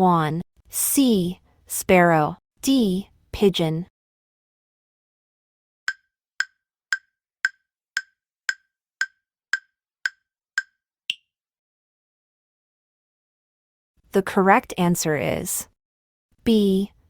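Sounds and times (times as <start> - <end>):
countdown timer ticks: 5.9 - 11.2.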